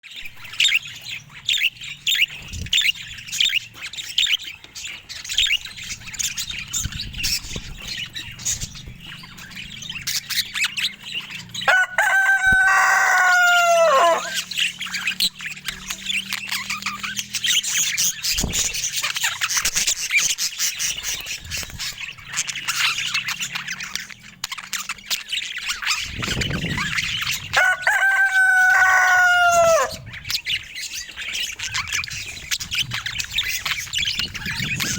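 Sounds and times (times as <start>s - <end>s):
budgerigars chirping: 0.2s - 34.9s
drawn-out crowing call: 11.6s - 14.7s, 27.4s - 30.0s.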